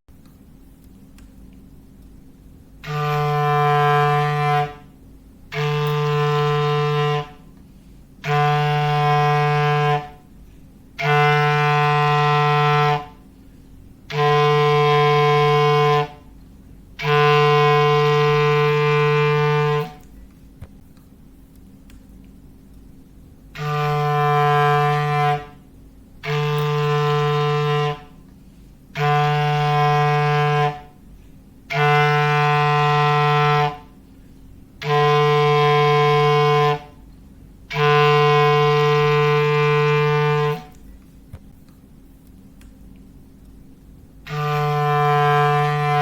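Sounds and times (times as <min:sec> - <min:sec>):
foghorn blasts: 0:02.8 - 0:16.4, 0:17.0 - 0:20.1, 0:23.5 - 0:40.8, 0:44.2 - 0:46.0.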